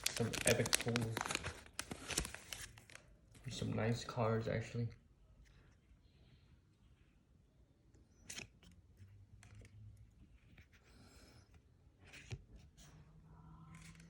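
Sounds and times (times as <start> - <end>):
foil pack crinkling: 0.0 - 3.1.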